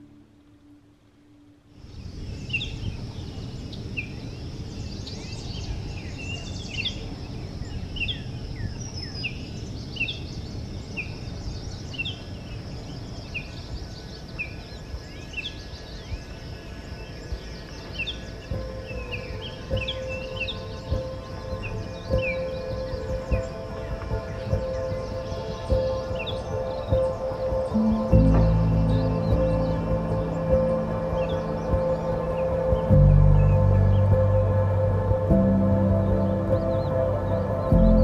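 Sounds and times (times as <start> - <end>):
low rumble: 27.9 - 38.0.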